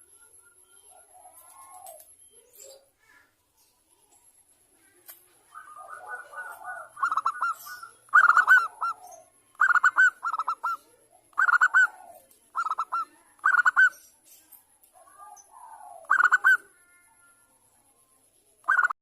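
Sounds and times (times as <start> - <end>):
dove cooing: 0.7 - 2.9, 4.9 - 14.0, 14.9 - 17.0, 18.6 - 19.0.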